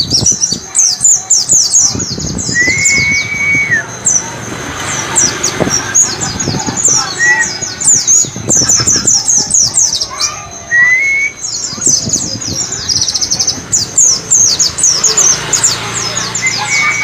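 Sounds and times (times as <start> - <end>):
bird trill: 0.0 - 17.0
low rising whistles: 2.4 - 5.9, 10.2 - 12.1.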